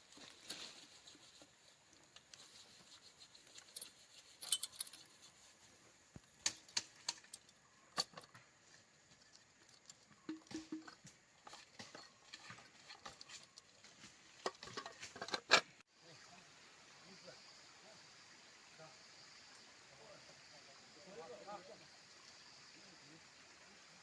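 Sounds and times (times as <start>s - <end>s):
faint clicks and rustles: 0.0s - 15.8s.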